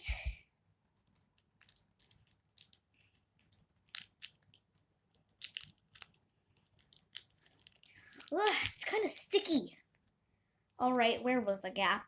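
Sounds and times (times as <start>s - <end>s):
paper crinkling and crackling: 0.9s - 9.1s.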